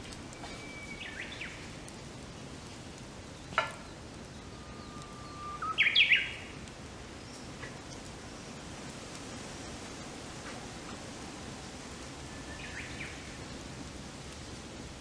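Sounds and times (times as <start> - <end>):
songbird singing: 0.3 - 1.8, 3.4 - 6.6, 12.3 - 13.5.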